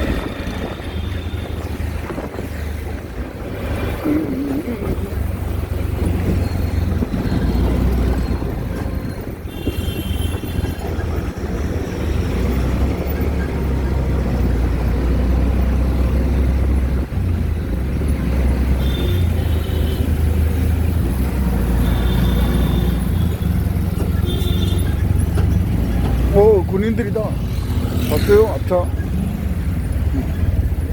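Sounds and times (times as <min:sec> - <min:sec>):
auto-rickshaw engine rumble: 0:00.0 - 0:30.9.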